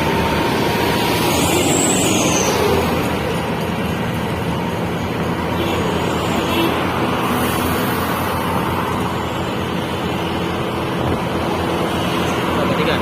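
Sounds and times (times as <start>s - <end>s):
road noise: 0.0s - 13.0s
truck engine running: 0.0s - 13.0s.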